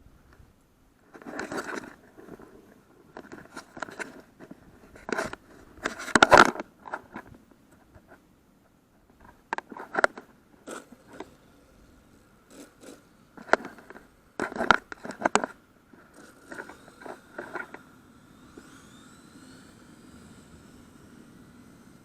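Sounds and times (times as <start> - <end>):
handling clicks and scrapes: 1.0 - 8.3, 9.0 - 19.8
faint high hiss: 15.6 - 22.0
faint rising tones: 16.1 - 22.0.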